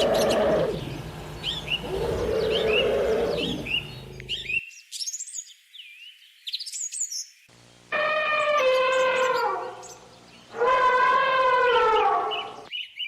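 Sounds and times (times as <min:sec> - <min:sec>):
small birds chirping: 0:00.0 - 0:07.9, 0:11.4 - 0:13.0.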